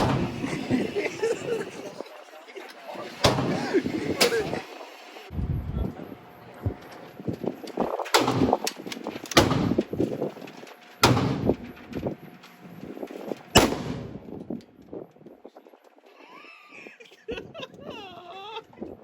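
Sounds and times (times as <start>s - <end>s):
gunshots with reverberation: 9.3s - 9.9s, 11.0s - 11.6s, 13.6s - 14.4s.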